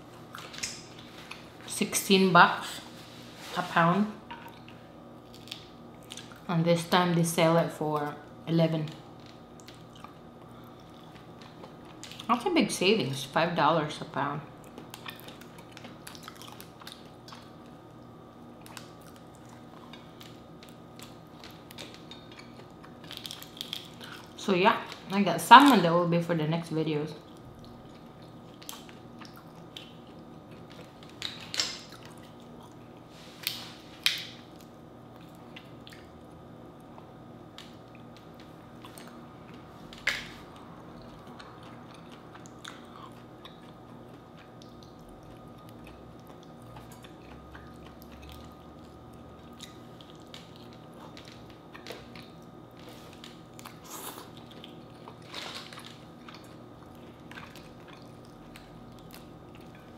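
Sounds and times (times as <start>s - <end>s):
chewing and biting: 4.4s - 6.5s, 9.1s - 12.3s, 14.6s - 24.4s, 27.2s - 59.9s.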